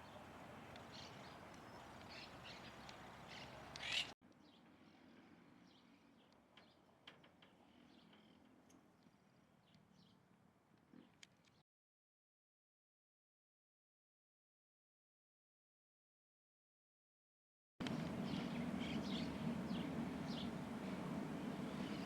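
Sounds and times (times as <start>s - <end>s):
birds chirping: 0.0s - 4.2s, 17.8s - 22.0s
steady background hiss: 17.8s - 22.0s.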